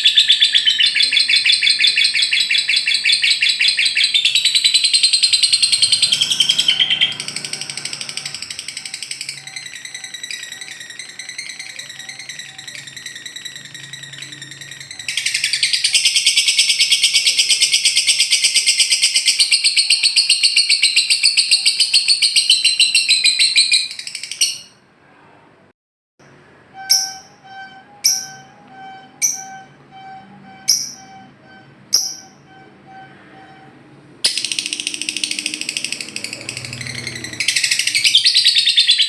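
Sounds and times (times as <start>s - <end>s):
lovebird chattering trill: 0.0s - 24.7s, 31.9s - 32.4s, 34.3s - 39.0s
sharp bird chirps: 0.0s - 24.8s, 26.8s - 33.6s, 34.3s - 39.0s.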